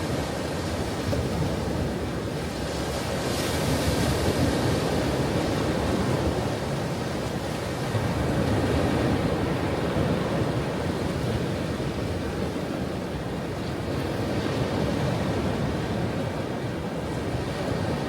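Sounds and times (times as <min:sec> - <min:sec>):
ocean waves breaking: 0:00.0 - 0:18.0.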